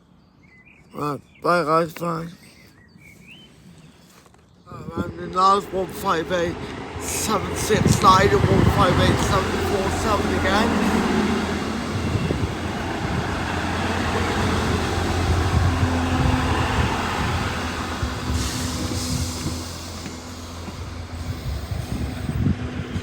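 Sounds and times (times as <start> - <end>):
diesel train engine drone: 4.7 - 23.0
burst of hissing: 16.9 - 23.0.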